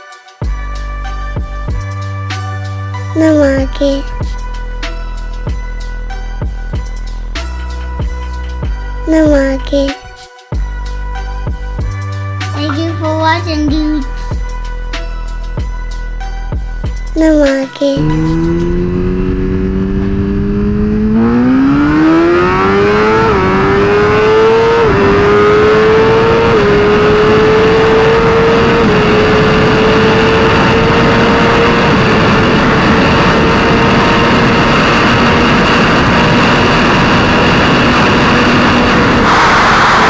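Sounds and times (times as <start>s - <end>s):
motorcycle engine accelerating: 18.0s - 40.0s.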